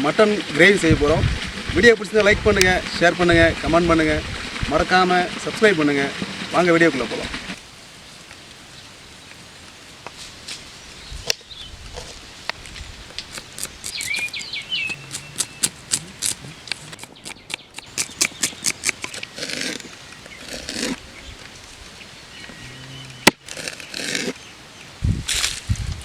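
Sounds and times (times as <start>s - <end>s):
bird chirp: 13.3s - 25.0s
rustling swishes: 25.0s - 26.0s.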